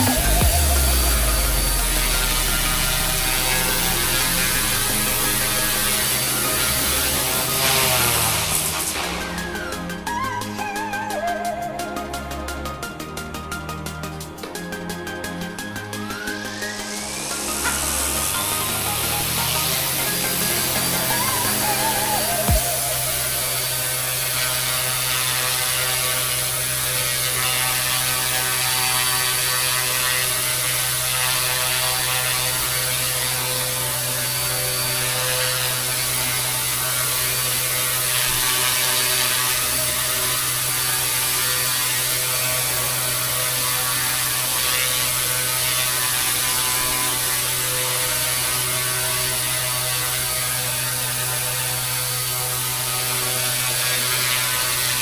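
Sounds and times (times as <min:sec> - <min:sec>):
helicopter rotors whirring: 0:00.0 - 0:28.3.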